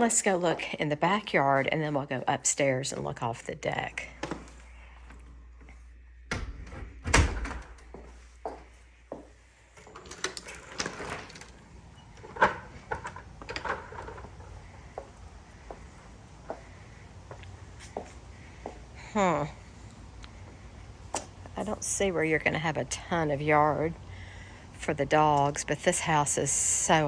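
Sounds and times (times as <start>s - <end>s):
door opening: 6.3s - 8.1s, 9.8s - 14.6s.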